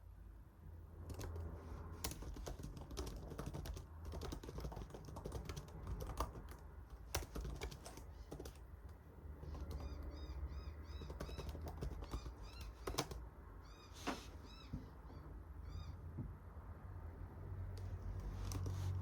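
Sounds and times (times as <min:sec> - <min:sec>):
typing on keyboard: 0:01.0 - 0:13.2, 0:18.2 - 0:18.8.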